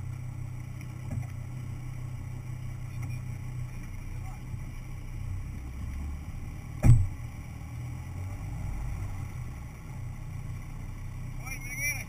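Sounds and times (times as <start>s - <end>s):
vehicle engine running: 0.0s - 12.0s
loud sharp thump: 6.8s - 7.2s.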